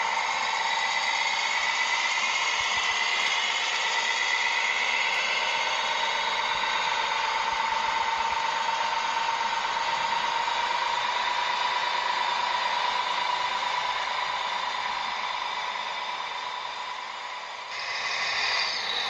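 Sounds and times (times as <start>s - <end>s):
electric motor and gearbox whining: 0.0s - 19.0s.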